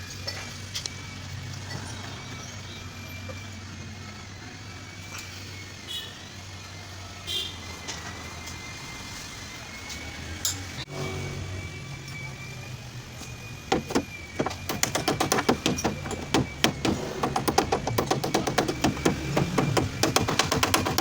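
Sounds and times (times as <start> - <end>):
faint high whine: 0.0 - 14.9
low mechanical hum: 0.0 - 21.0.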